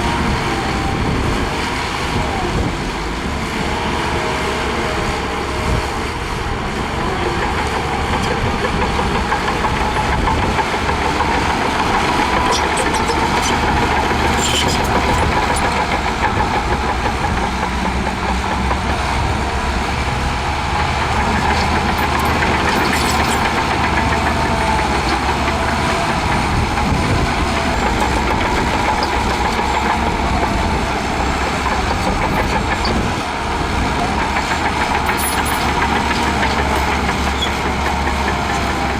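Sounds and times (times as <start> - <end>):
bulldozer diesel engine running: 0.0 - 38.9.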